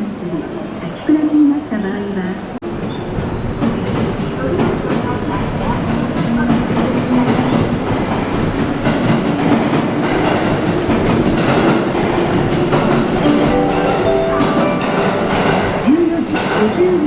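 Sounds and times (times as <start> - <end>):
train wheels clattering over rail joints: 3.0 - 13.2
steady pitched tones: 13.2 - 16.2.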